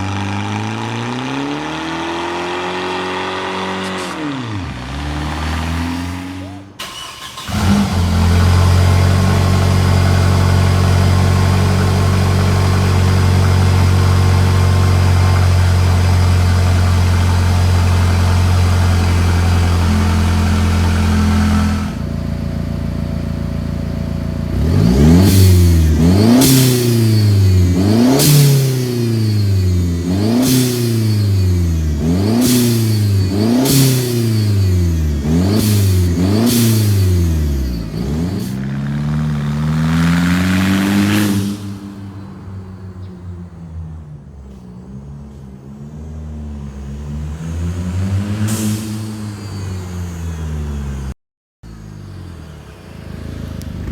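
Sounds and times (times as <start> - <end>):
car engine idling and revving: 0.0 - 53.9
short hiss at rev peak: 25.3 - 42.3, 48.2 - 50.6.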